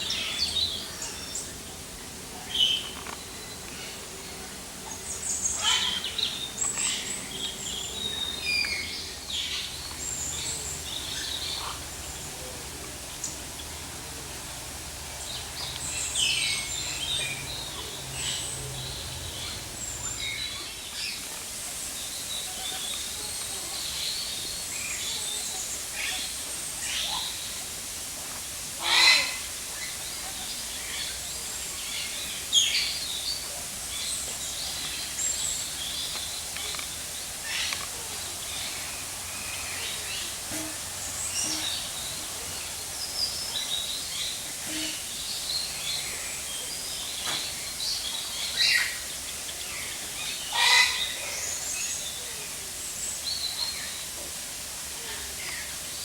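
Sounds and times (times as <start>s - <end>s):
birds chirping and twittering: 0.0s - 56.0s.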